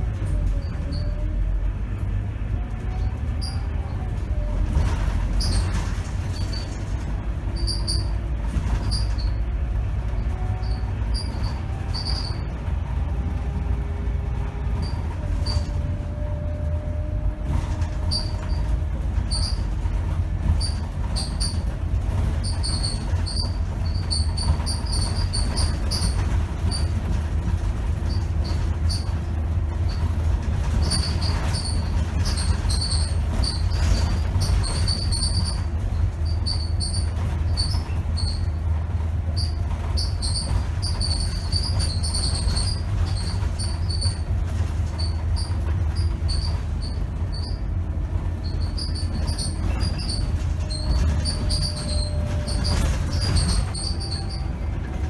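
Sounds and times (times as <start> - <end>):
high squeaks from bus body: 0.0 - 1.5, 2.8 - 55.0
bus engine and road rumble: 0.0 - 55.0.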